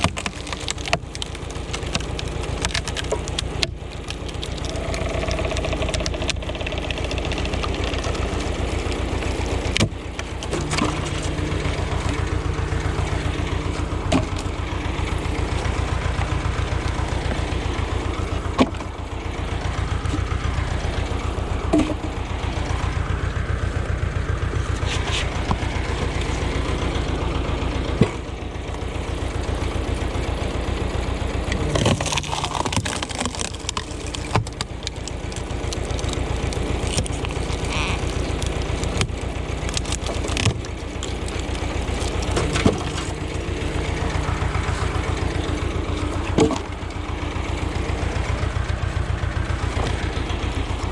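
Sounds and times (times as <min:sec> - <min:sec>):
wood splitting cracks: 0:00.0 - 0:18.9, 0:24.7 - 0:26.8, 0:31.5 - 0:46.9
tractor engine running: 0:00.0 - 0:50.9.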